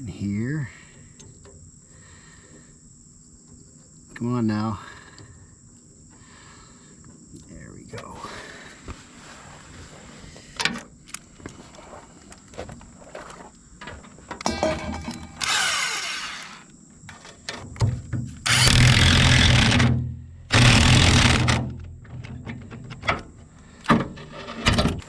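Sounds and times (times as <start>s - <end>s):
tool clicks and clanks: 14.3s - 23.2s
handheld power tool bursts: 14.4s - 16.7s, 18.4s - 21.7s.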